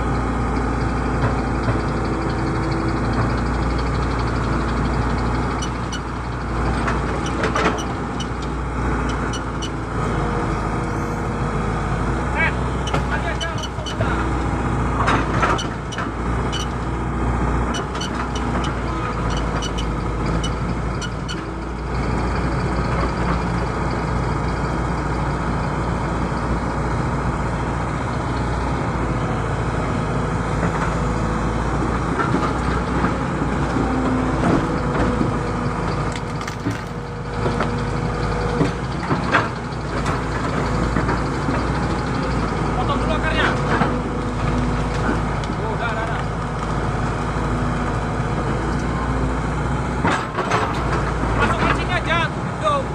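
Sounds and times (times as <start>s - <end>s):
excavator engine running: 0.0s - 52.9s.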